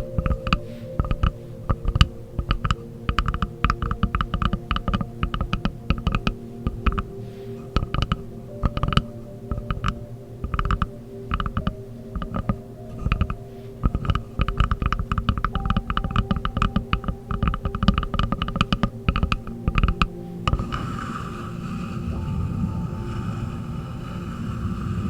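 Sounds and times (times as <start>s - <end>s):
faint steady tones: 0.0s - 25.0s.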